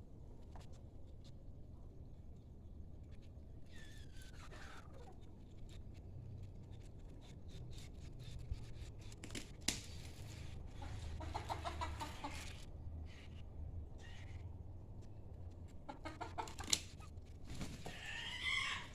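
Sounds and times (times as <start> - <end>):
chickens clucking: 10.6 - 12.7, 15.7 - 18.9.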